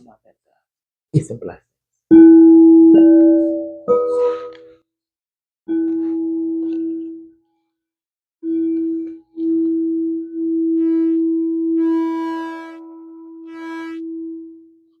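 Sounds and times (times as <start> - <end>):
singing bowl tone: 2.1 - 4.7, 8.4 - 14.9.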